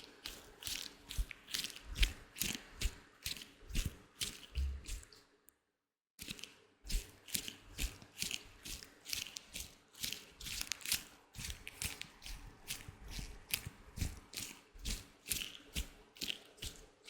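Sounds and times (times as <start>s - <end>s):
latex gloves crinkling: 7.3s - 13.8s.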